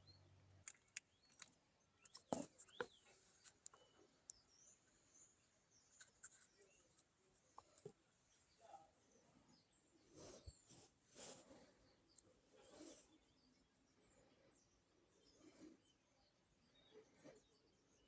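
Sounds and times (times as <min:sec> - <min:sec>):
small clicks from birds: 0:00.0 - 0:08.6, 0:09.6 - 0:16.0
pet birds chirping: 0:00.0 - 0:10.9.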